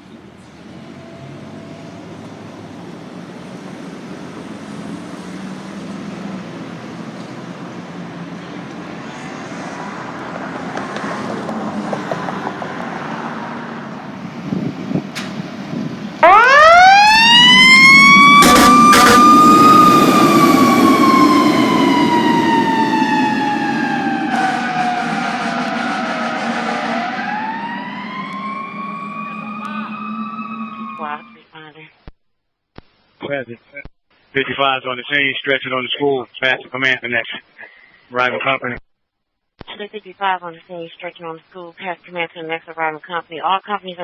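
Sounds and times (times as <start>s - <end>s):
loud horn blasts: 16.2s - 31.4s
mechanical siren wailing: 16.2s - 31.4s
low rumble: 17.2s - 31.4s.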